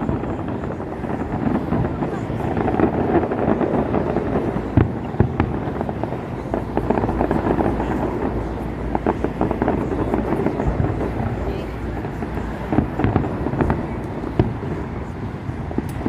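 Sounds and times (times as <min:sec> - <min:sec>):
fireworks bangs and crackles: 0:00.0 - 0:16.0
fireworks rumble: 0:00.0 - 0:16.0.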